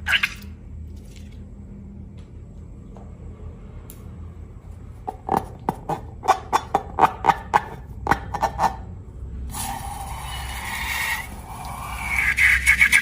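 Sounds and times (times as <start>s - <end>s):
steady hissing: 9.5s - 13.0s.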